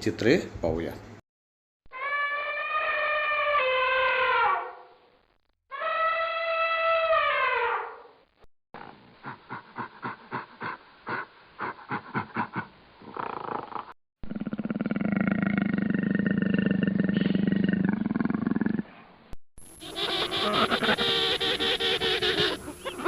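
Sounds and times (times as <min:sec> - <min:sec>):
long deep animal call: 0:01.9 - 0:04.7, 0:05.7 - 0:07.8, 0:13.2 - 0:19.0, 0:19.8 - 0:23.0
short irregular animal calls: 0:01.9 - 0:04.7, 0:19.7 - 0:23.0.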